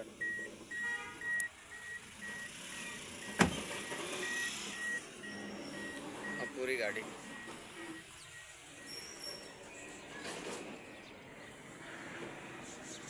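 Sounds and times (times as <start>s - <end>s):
electronic beeper beeping: 0.2s - 9.6s.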